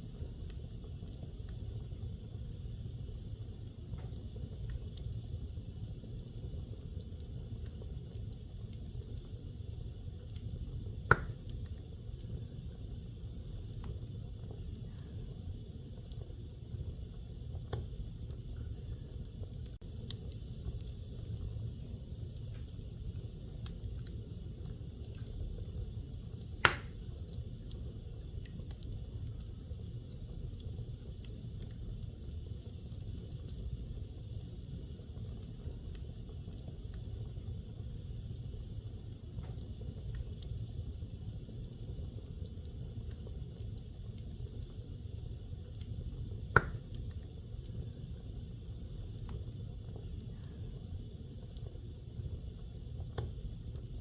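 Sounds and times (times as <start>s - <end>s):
faint fire crackles: 0.0s - 54.0s
fireplace fire rumbling: 0.0s - 54.0s
loud sharp wood pops: 11.1s - 11.4s, 26.6s - 27.0s, 46.6s - 46.8s.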